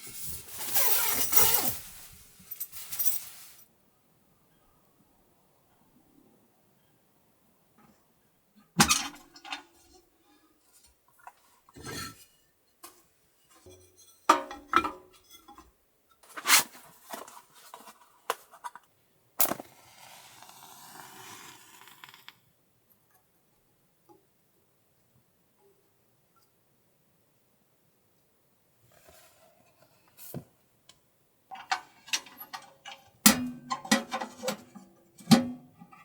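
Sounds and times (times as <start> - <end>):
steady hiss: 0.0 - 3.7.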